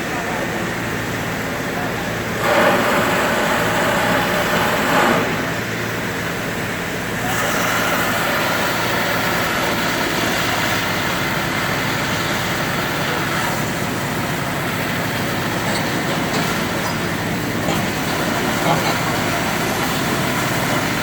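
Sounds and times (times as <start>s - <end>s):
engine noise: 0.0s - 21.0s.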